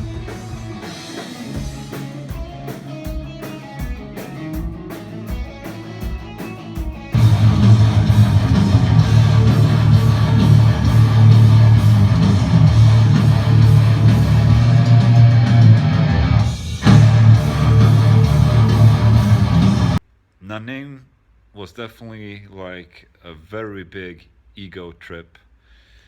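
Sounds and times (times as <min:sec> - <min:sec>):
heavy metal music: 0:00.0 - 0:20.0.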